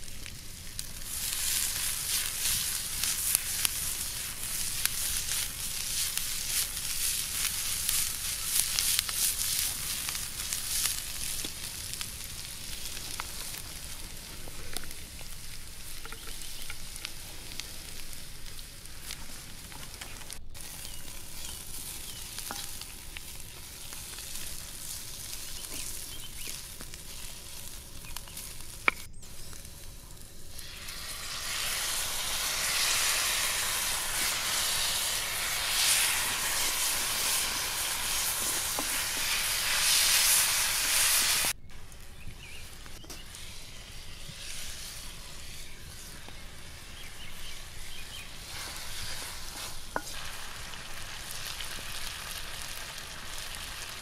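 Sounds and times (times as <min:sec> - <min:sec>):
food sizzling in hot oil: 0:00.0 - 0:54.0
sauce poured into hot pan: 0:30.5 - 0:41.6.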